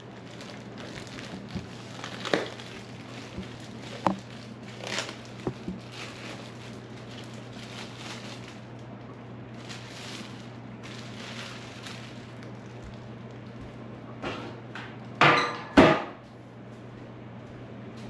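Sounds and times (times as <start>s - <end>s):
lettuce leaves rustling: 0.0s - 13.6s
steady low hum: 0.0s - 18.0s.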